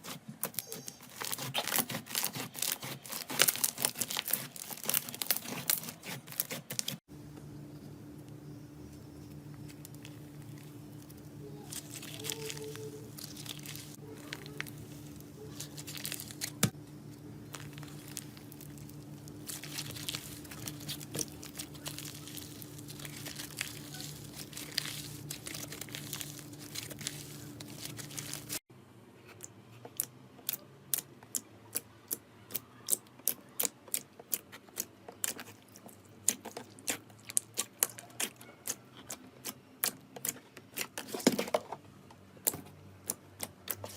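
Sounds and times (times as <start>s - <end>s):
slime crinkly crackling: 0.0s - 7.0s, 9.5s - 28.6s
steady low hum: 7.0s - 29.1s.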